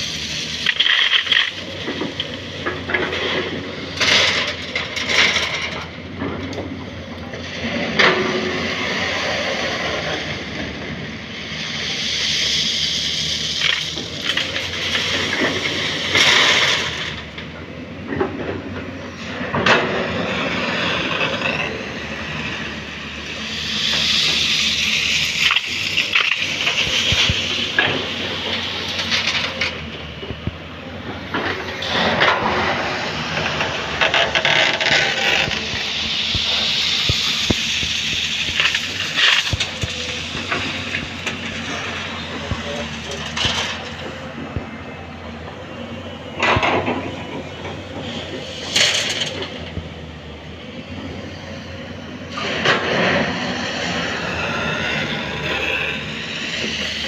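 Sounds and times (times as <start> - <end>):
soil pouring into truck: 0.0 - 6.0, 11.4 - 17.4, 19.1 - 30.2, 31.4 - 44.3
excavator diesel engine running: 0.0 - 57.0.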